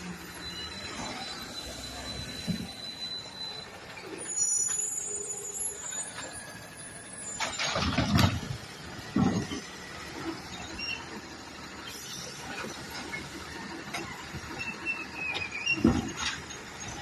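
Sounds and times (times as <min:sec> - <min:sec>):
heavy clunks: 0:07.4 - 0:09.8.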